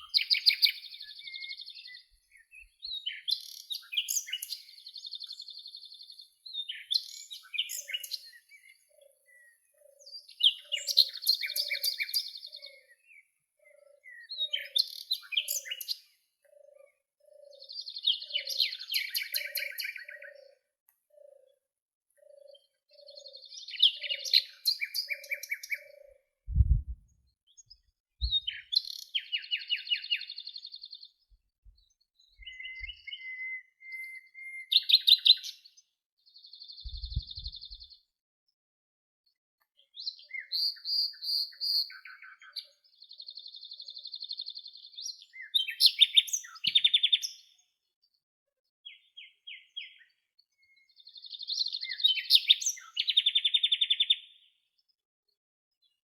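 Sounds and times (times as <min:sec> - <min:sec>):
songbirds trilling and chirping: 0:00.0 - 0:26.4, 0:27.2 - 0:38.2, 0:39.3 - 0:56.0
low thumps: 0:26.5 - 0:27.0
repeating low note: 0:26.5 - 0:27.0.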